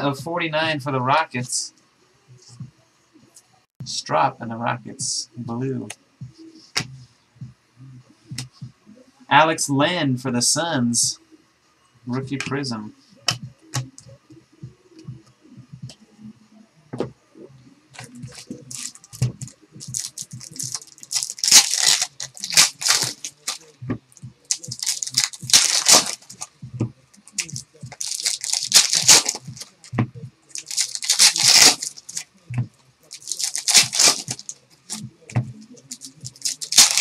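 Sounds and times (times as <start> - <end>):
card pack wrappers tearing: 18.0 - 19.2, 19.8 - 23.7, 24.5 - 26.5, 27.3 - 29.9, 30.5 - 32.3, 33.1 - 35.0, 35.8 - 37.0.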